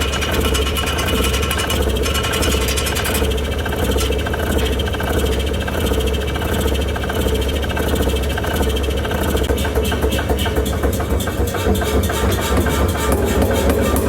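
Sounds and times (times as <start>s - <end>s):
fast even rattle: 0.0s - 5.7s
machine humming: 11.6s - 14.0s.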